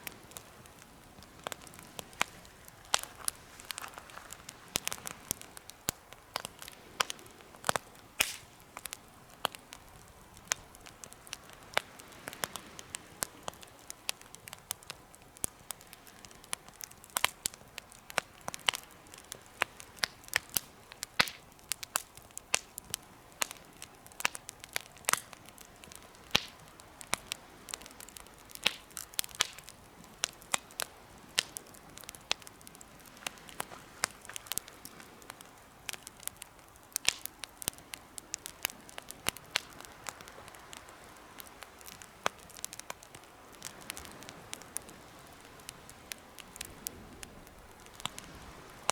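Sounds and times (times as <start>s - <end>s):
faint hiss of burning: 0.0s - 48.9s
wood fire crackling and popping: 0.0s - 48.9s.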